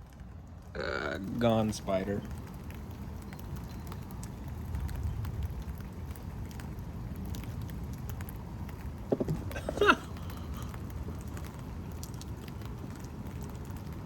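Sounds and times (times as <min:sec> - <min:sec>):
steady rain: 0:00.0 - 0:14.0
short vocal sound: 0:09.1 - 0:10.7.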